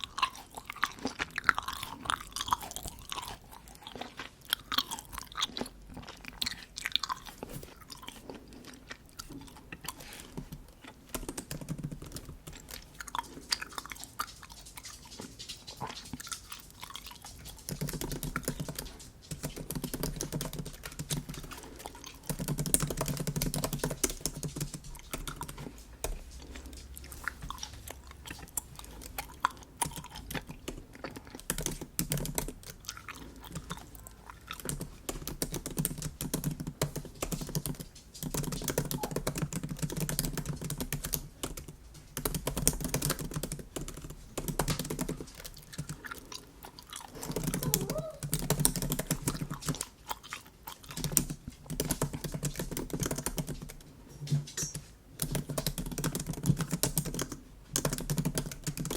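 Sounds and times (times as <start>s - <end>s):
chewing bubble gum: 0.0s - 53.8s
keyboard typing clicks: 10.3s - 12.8s, 17.7s - 21.6s, 22.3s - 26.2s, 34.6s - 45.9s, 47.2s - 49.7s, 51.0s - 53.8s, 54.6s - 58.9s.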